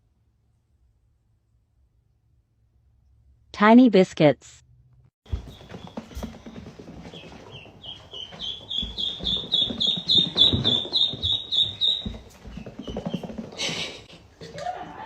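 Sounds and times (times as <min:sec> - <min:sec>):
rapid high animal chirps: 0:07.5 - 0:12.3.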